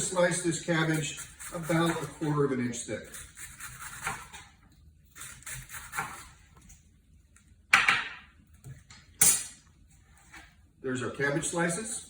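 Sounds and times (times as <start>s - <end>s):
knife slicing cabbage on board: 0.9s - 2.3s, 3.0s - 4.5s, 5.1s - 6.4s.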